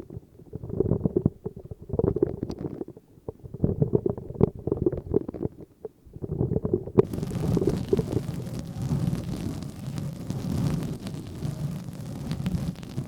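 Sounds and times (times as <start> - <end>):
bright hissing rustle: 7.1 - 13.0.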